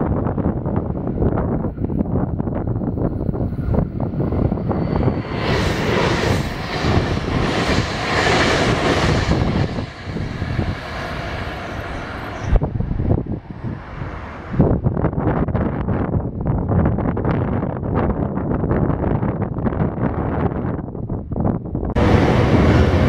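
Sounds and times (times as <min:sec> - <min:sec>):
electric train passing at speed: 0:00.0 - 0:16.0, 0:21.9 - 0:23.0.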